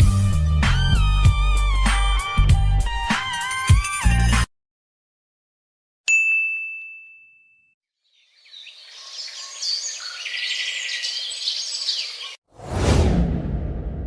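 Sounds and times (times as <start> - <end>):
bright ding: 6.1 - 7.8
birds chirping: 8.0 - 12.4.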